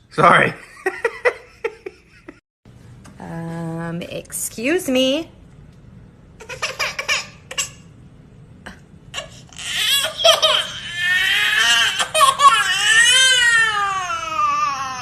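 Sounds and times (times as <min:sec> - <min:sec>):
baby crying: 0:09.1 - 0:15.0.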